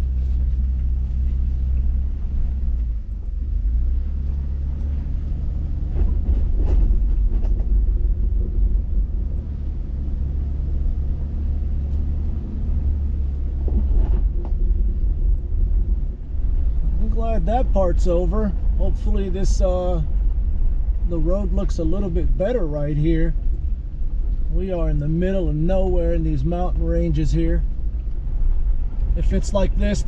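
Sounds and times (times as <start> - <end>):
vehicle engine and road rumble: 0.0 - 30.0
knocks and rattles from bumps: 5.9 - 8.6.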